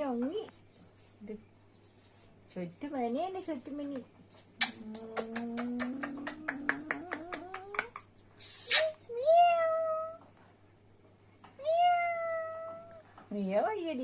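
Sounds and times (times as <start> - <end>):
cat meowing: 11.6 - 13.0.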